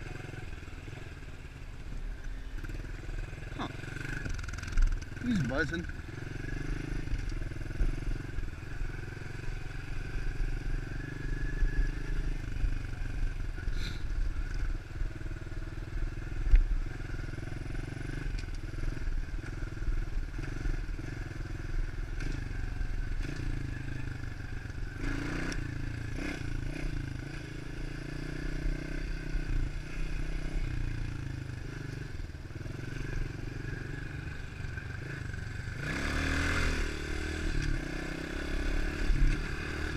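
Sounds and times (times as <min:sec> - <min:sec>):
motorbike engine revving: 0:02.6 - 0:14.0, 0:24.8 - 0:39.9.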